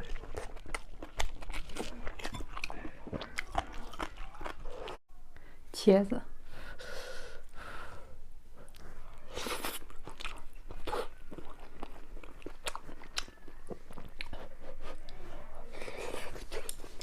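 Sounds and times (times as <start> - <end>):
person chewing crunchy food: 0.0 - 5.0, 8.7 - 17.0.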